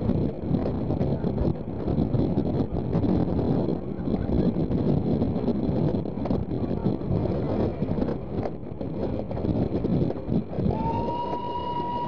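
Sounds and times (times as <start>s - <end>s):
wheels clattering on rails: 0.0s - 12.0s
wind buffeting microphone: 0.0s - 12.0s.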